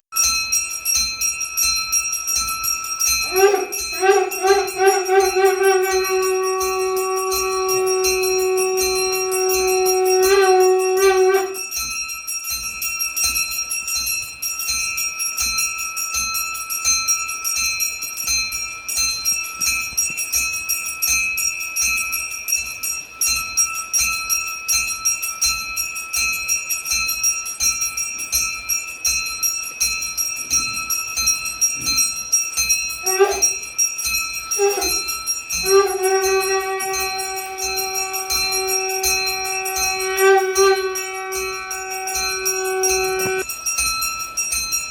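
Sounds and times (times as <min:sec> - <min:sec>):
hand bell ringing rapidly: 0:00.2 - 0:44.9
conch shell blown: 0:03.2 - 0:11.8, 0:33.0 - 0:33.7, 0:34.6 - 0:43.4.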